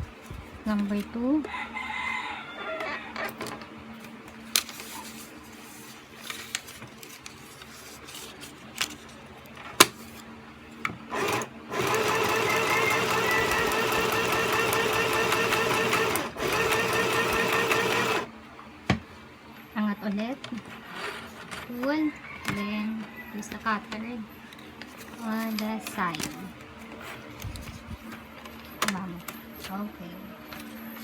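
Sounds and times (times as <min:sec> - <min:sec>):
electric sewing machine running: 0:11.1 - 0:18.3.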